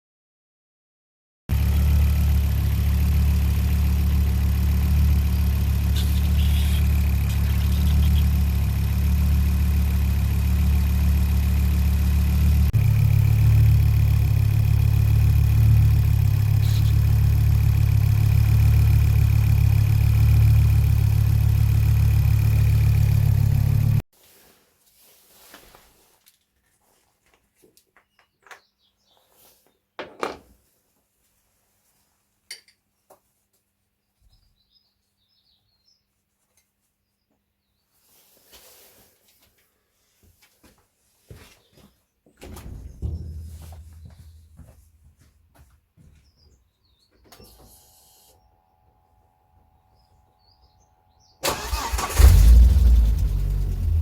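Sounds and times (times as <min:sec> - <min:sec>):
car engine idling: 0:01.5 - 0:24.0, 0:51.4 - 0:54.0.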